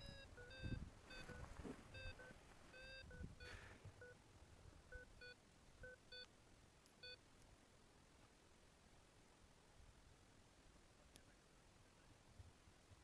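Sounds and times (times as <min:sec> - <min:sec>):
variometer short beeps: 0:00.0 - 0:04.2, 0:04.9 - 0:06.3, 0:07.0 - 0:07.2.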